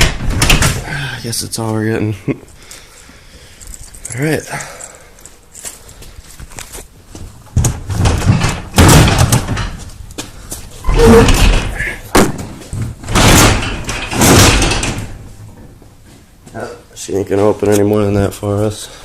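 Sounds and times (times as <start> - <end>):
garage door rattling and banging: 0.0 - 1.0, 7.4 - 10.0, 10.8 - 15.8.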